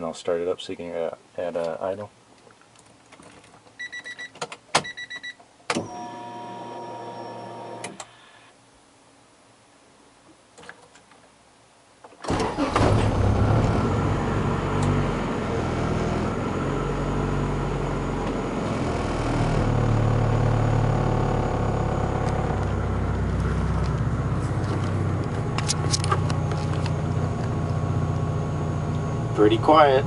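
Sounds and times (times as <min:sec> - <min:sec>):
car engine starting and idling: 0:12.2 - 0:30.0.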